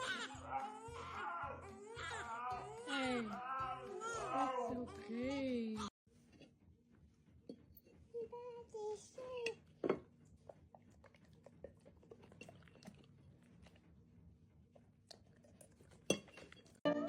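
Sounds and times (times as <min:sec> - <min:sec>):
faint chewing: 0:09.6 - 0:14.0, 0:14.6 - 0:16.9.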